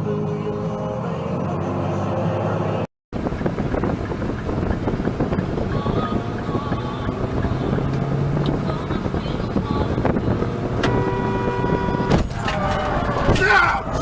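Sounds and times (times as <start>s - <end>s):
music: 0.0s - 2.8s
vehicle rumble: 0.0s - 14.0s
wind buffeting microphone: 3.2s - 14.0s.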